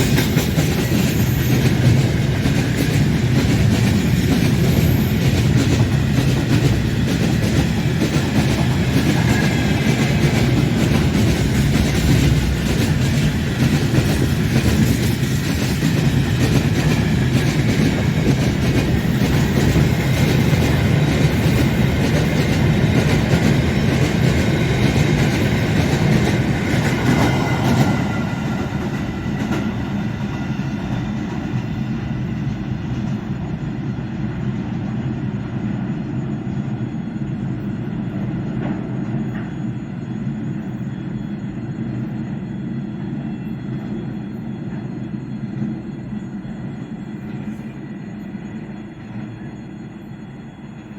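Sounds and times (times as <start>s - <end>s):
freight train wagons rolling: 0.0s - 33.7s
high squeal of train wheels: 0.0s - 50.9s.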